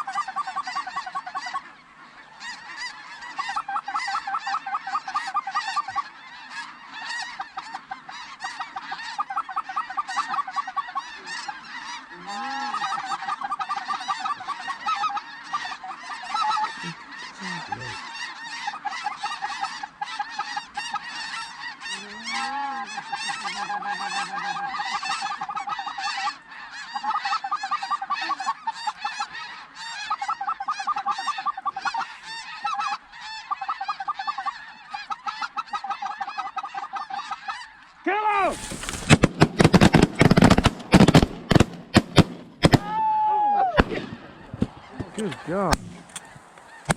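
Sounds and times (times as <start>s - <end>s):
low drawn-out goose calls: 0.0s - 41.6s, 42.6s - 46.9s
geese honking: 0.0s - 46.9s.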